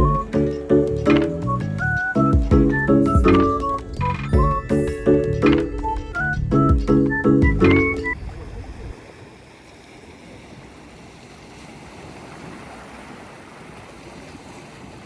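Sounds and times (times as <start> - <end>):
music track: 0.0 - 8.2
sea waves washing on shore: 7.6 - 15.0.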